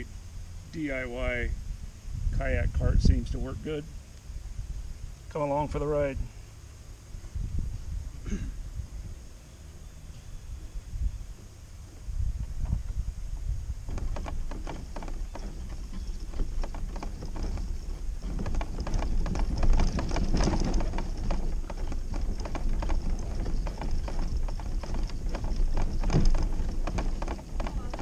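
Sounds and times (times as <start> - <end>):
cart wheels rumbling and clacking: 11.4 - 28.0.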